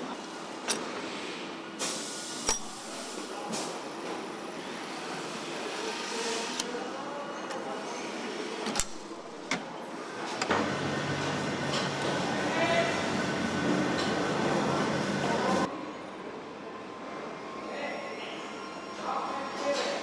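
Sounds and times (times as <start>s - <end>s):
factory background noise: 0.0s - 20.0s
sharp metal clanks: 2.5s - 3.2s.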